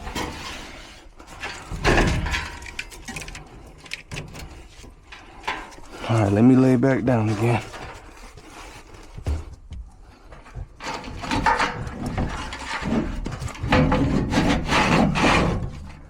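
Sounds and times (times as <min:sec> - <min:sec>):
scraping and rubbing on floor: 0:10.8 - 0:16.0.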